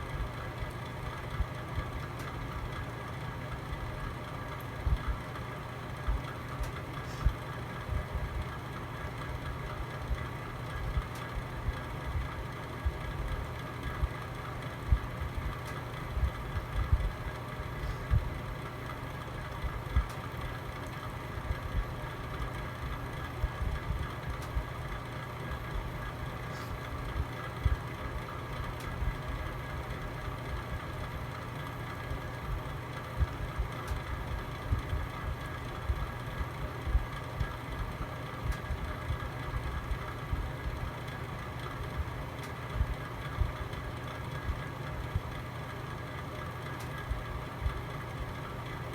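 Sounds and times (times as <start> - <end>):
low rumble of flame: 0.0 - 48.9.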